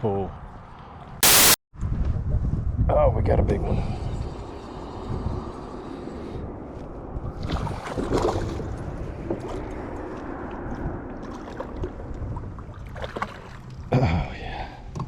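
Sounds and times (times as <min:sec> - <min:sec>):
water splashing around kayak: 0:07.3 - 0:09.8, 0:11.2 - 0:13.9
sharp splashes and knocks: 0:07.4 - 0:09.6, 0:12.6 - 0:13.8.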